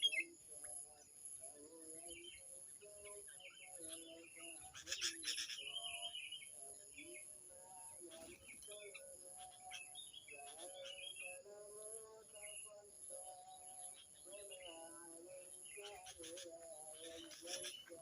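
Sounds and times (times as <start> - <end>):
faint bird calls: 0.0 - 7.3, 12.4 - 18.0.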